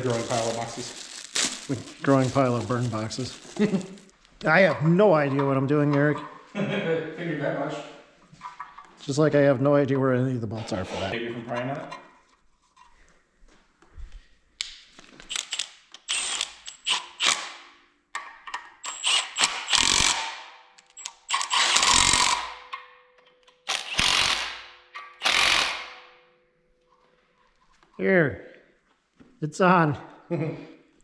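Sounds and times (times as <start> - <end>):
power tool bursts tightening bolts: 15.3 - 17.7, 18.8 - 22.7, 23.5 - 26.1.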